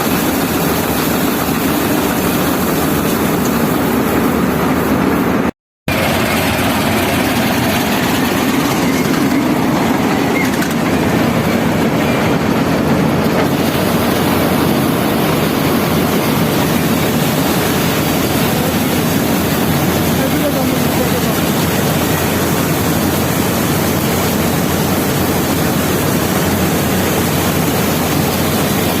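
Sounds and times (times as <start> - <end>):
combine harvester running: 0.0 - 29.0.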